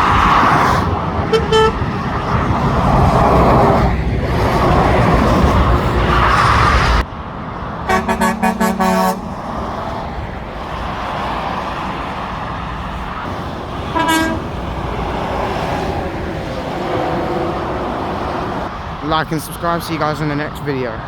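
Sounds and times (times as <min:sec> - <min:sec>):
motorway traffic hum: 0:00.0 - 0:21.0
rush of passing traffic: 0:00.0 - 0:21.0
lorry horn blasts: 0:01.3 - 0:01.8, 0:07.9 - 0:09.6, 0:13.9 - 0:14.6.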